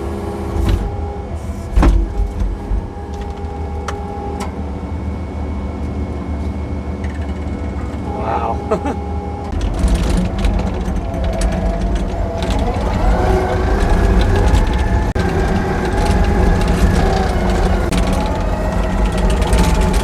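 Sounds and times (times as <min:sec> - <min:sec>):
engine running: 0:00.0 - 0:20.0
metal clanks and rattles: 0:09.5 - 0:20.0.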